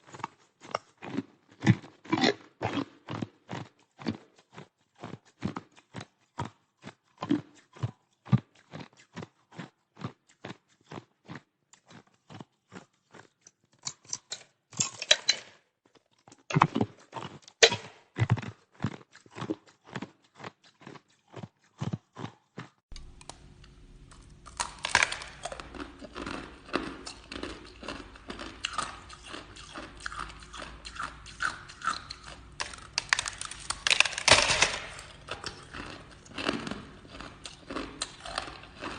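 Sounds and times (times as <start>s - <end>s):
ice being crunched and chewed: 0.0s - 38.9s
low hum: 22.9s - 38.9s.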